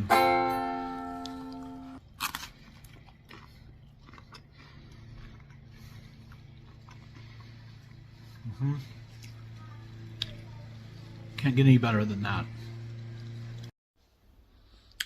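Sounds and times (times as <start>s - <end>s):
strummed string chord: 0.0s - 2.0s
low steady hum: 0.0s - 15.0s
crunch and chewing: 2.0s - 10.4s.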